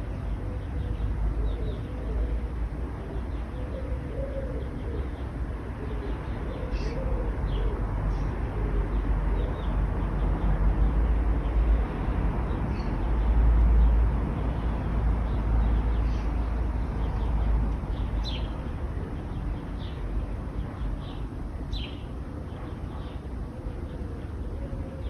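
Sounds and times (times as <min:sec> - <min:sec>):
dove cooing: 0:00.0 - 0:10.0, 0:22.5 - 0:25.0
road traffic rumble: 0:00.0 - 0:25.0.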